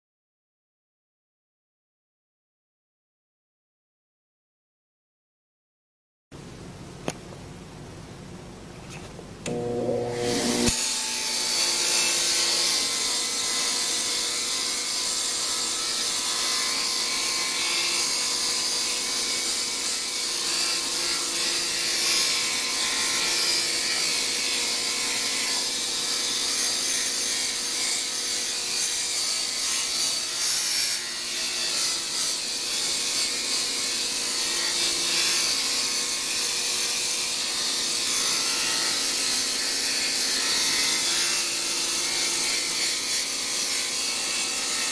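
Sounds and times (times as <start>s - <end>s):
power tool grinding steel: 9.5s - 44.9s.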